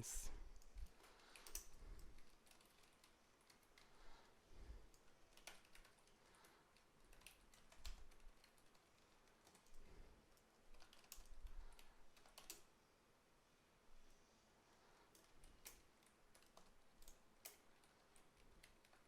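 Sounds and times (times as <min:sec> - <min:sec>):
keyboard typing: 0:00.7 - 0:04.0, 0:04.9 - 0:12.7, 0:15.1 - 0:19.0.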